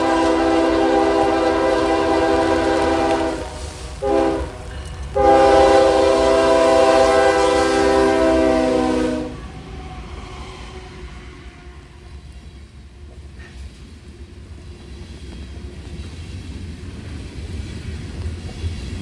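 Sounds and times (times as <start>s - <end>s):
locomotive air horn: 0.0s - 9.6s
low train rumble: 0.0s - 19.0s.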